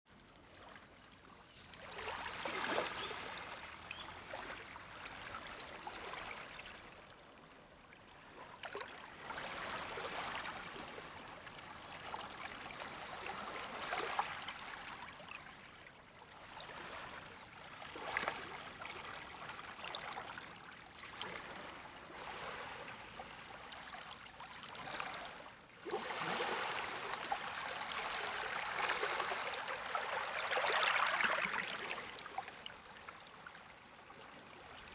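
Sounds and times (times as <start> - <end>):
gentle waves washing on beach: 16.6 - 32.6.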